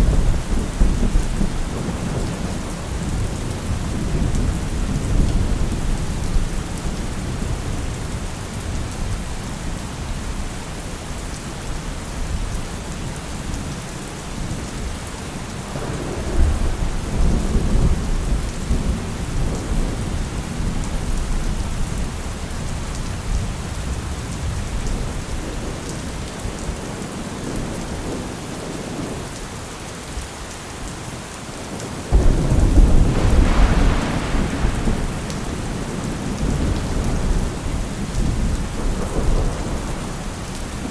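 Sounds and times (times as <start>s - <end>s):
rolling thunder: 0.0s - 9.2s, 15.7s - 22.1s, 32.1s - 40.9s
heavy rain: 0.0s - 40.9s
thunderclap: 15.8s - 20.7s, 32.1s - 40.9s.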